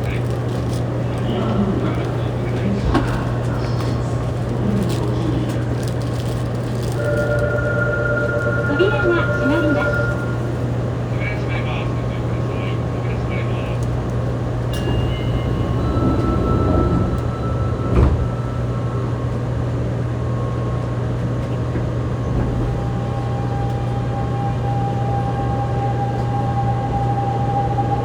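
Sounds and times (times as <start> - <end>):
train inverter tone: 6.8 - 28.0.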